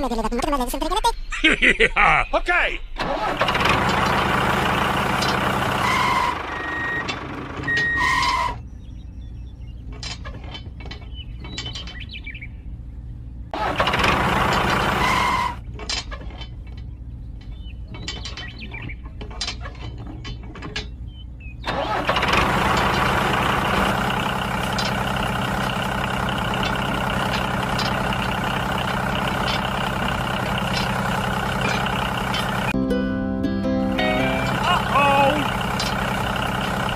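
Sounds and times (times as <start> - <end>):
toy tractor engine running: 13.6 - 15.6, 21.7 - 32.8, 34.0 - 36.9.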